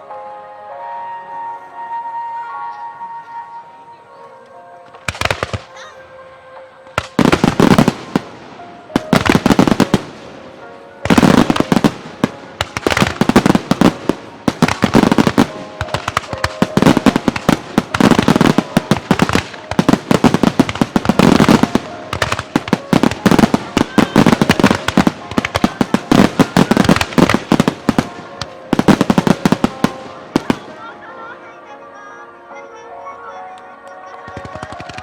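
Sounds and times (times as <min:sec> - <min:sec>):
fireworks bangs and crackles: 0:04.9 - 0:05.8, 0:06.9 - 0:31.0, 0:34.2 - 0:35.0.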